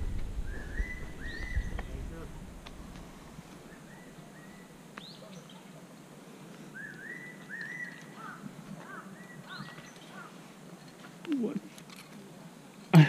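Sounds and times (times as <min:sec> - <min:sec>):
bird whistling song: 0:00.4 - 0:01.9, 0:06.7 - 0:08.1.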